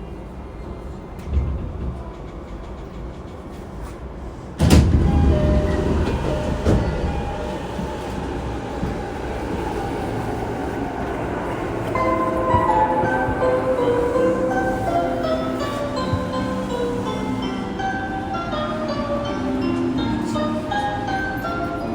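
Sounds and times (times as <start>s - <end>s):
train wheels rumbling on rail: 0.0s - 21.9s
steady tones: 4.7s - 21.9s.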